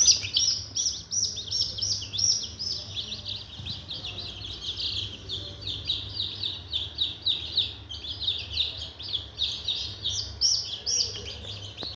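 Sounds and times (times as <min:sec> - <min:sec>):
chicks peeping: 0:00.0 - 0:11.9.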